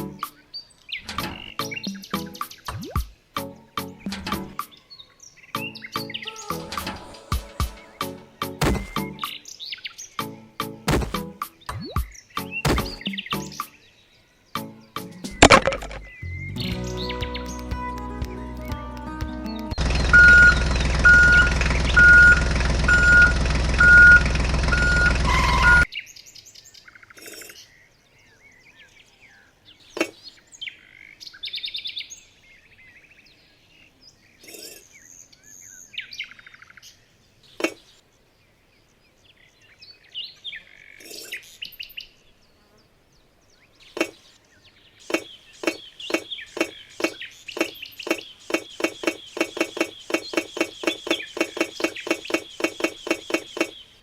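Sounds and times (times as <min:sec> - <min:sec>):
birds chirping: 0:00.0 - 0:54.0
music with repeating beep: 0:19.5 - 0:25.9
sharp clicks: 0:45.1 - 0:53.8.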